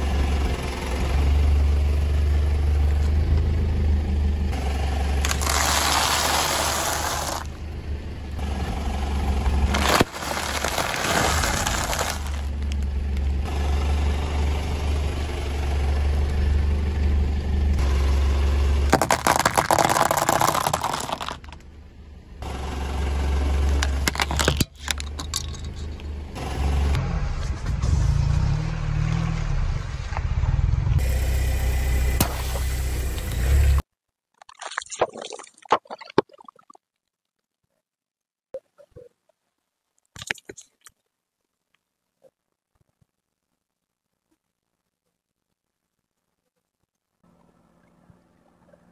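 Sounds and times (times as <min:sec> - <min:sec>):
car engine hum: 0:00.0 - 0:33.8
dry pasta crunching: 0:05.2 - 0:07.5, 0:09.7 - 0:12.6, 0:18.9 - 0:21.6
tortilla chips crackling: 0:05.2 - 0:07.5, 0:09.7 - 0:12.7, 0:19.0 - 0:21.4
water beads squishing: 0:05.2 - 0:07.5, 0:09.7 - 0:12.8, 0:18.9 - 0:21.6, 0:34.4 - 0:37.4, 0:40.1 - 0:41.0.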